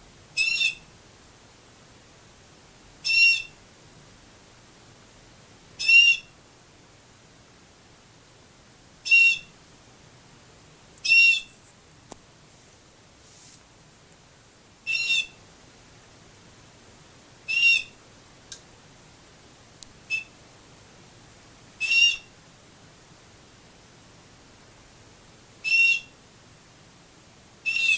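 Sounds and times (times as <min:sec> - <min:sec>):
canary call notes: 0:00.4 - 0:00.9, 0:03.0 - 0:03.6, 0:05.8 - 0:06.4, 0:09.0 - 0:09.6, 0:11.0 - 0:11.6, 0:14.8 - 0:15.4, 0:17.4 - 0:18.0, 0:20.0 - 0:20.4, 0:21.8 - 0:22.3, 0:25.6 - 0:26.2, 0:27.6 - 0:27.9
faint clicks: 0:18.5 - 0:18.7, 0:19.8 - 0:20.0.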